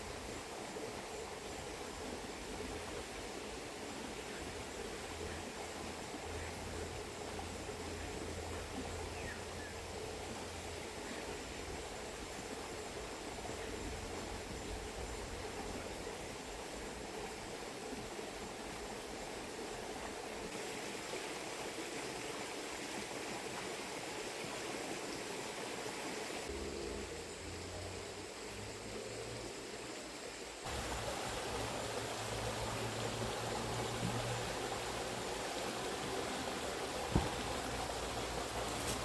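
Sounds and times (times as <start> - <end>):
river water rushing: 30.6 - 39.0.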